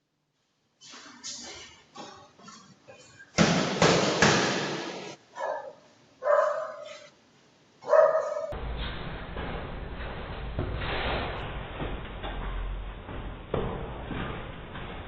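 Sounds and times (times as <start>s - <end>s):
dog barking: 5.4s - 7.1s, 7.8s - 8.6s
noisy clatter with sharp hits: 8.6s - 15.0s.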